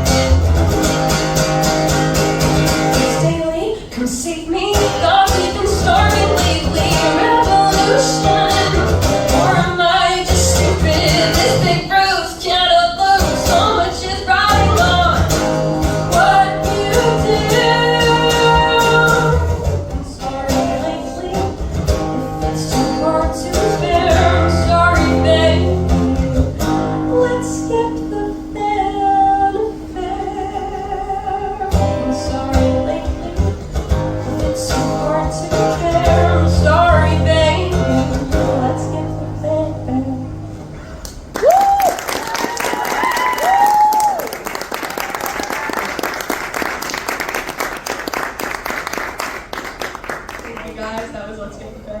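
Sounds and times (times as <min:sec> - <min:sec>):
live band guitar music: 0:00.0 - 0:41.4.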